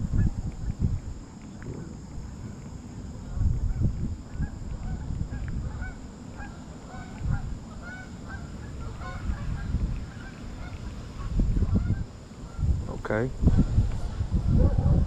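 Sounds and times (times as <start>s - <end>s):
low rumble: 0.0s - 6.2s
birds calling: 0.2s - 14.2s.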